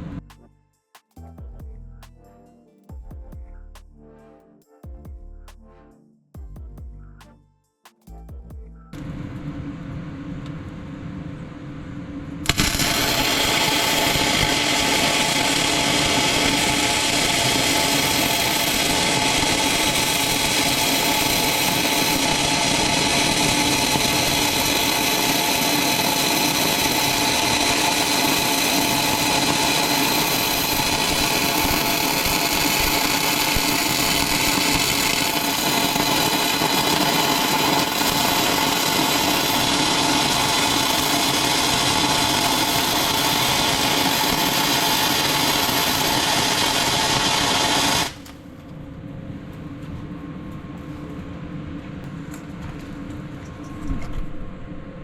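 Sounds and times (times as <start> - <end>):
angle grinder on steel: 12.4 - 48.2.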